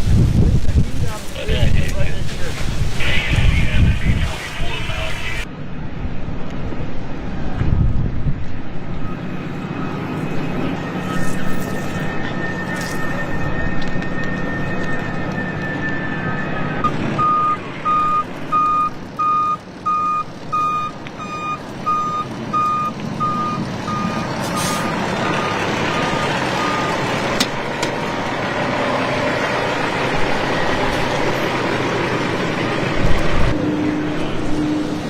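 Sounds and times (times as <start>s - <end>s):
engine and street noise: 0.0s - 35.0s
reversing alarm beeping: 9.0s - 27.1s.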